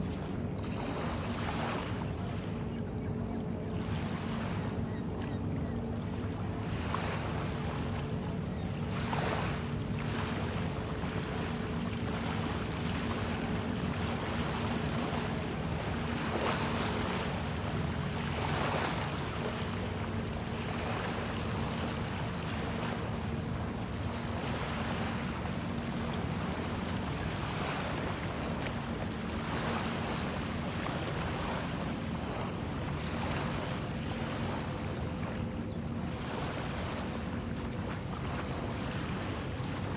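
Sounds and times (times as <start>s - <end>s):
small waves washing ashore: 0.0s - 2.6s, 6.1s - 8.2s, 8.8s - 39.9s
low engine hum: 0.0s - 39.9s.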